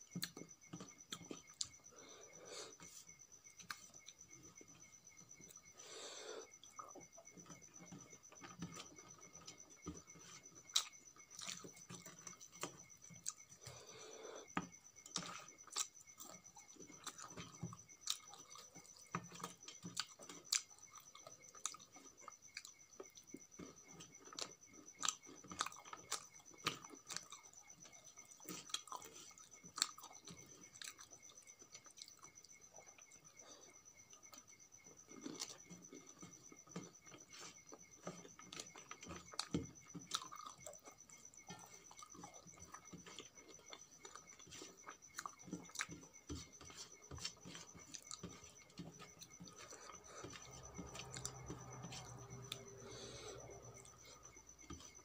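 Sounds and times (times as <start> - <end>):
faint high whine: 0.0 - 55.0
chewing with wet mouth clicks: 15.2 - 33.1, 37.1 - 46.2.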